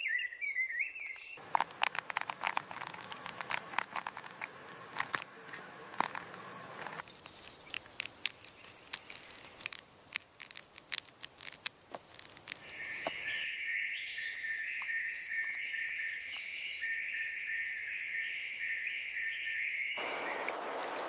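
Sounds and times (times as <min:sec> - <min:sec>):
sharp scattered clicks: 0:01.4 - 0:12.7.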